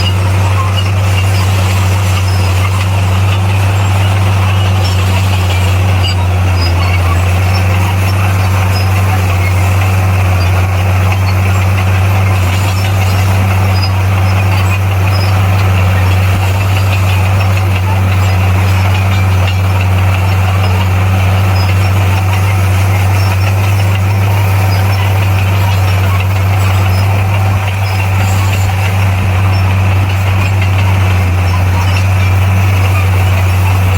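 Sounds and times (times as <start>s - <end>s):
bulldozer diesel engine droning: 0.0s - 33.9s.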